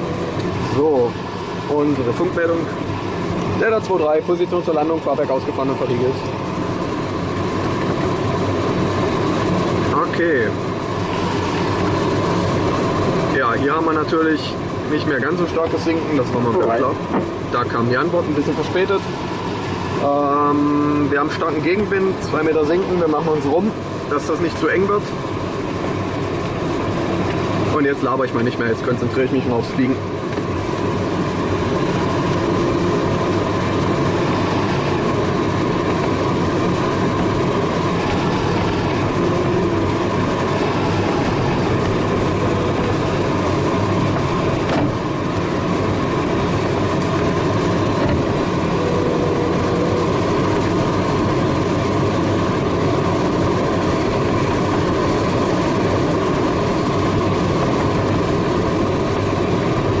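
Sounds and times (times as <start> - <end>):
air rushing over glider canopy: 30.0 - 60.0.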